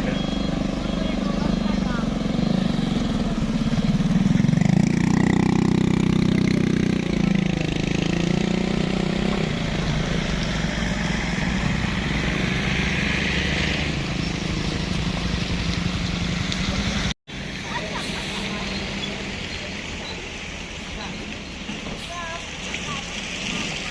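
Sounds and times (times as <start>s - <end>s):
truck diesel engine running: 0.0s - 13.3s.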